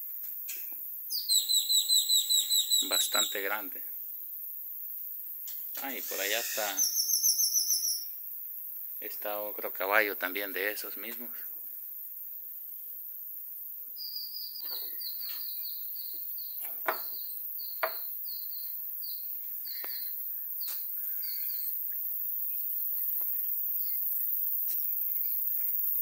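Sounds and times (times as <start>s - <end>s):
outdoor hiss: 0.0s - 26.0s
bird chirping rapidly: 1.1s - 3.6s, 6.0s - 8.2s, 14.0s - 20.0s.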